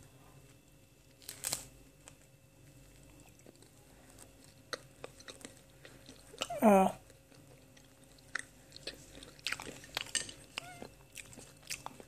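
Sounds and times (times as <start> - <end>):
faint chewing crunches: 0.4 - 12.0
tortilla wrap crunching: 1.1 - 2.3.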